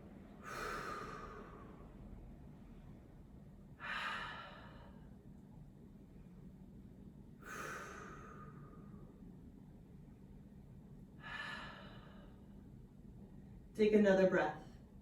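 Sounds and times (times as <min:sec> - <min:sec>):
person breathing deeply: 0:00.4 - 0:01.9, 0:07.4 - 0:09.1, 0:11.2 - 0:12.5.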